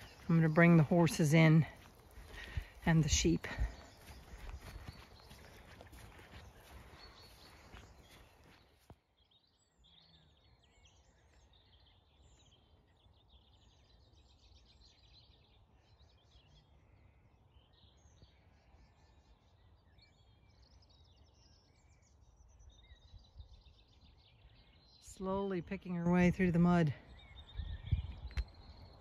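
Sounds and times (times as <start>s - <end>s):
birds chirping: 0.0s - 29.0s
low wind rumble: 26.2s - 29.0s.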